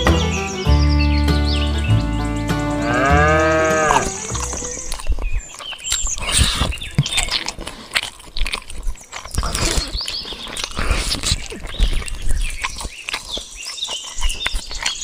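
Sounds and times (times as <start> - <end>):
short chirping calls: 0.0 - 7.3
animals chewing and crunching feed: 0.0 - 15.0.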